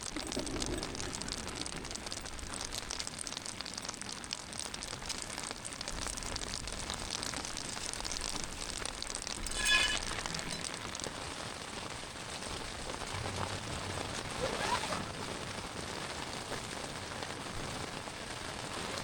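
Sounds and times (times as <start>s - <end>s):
rain pattering on a tent: 0.0s - 19.0s
high-pitched squeak: 9.4s - 10.9s.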